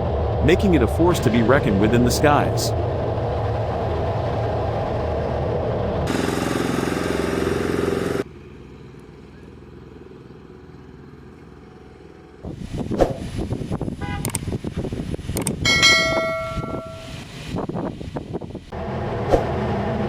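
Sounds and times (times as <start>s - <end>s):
jet engine noise: 0.0s - 8.2s.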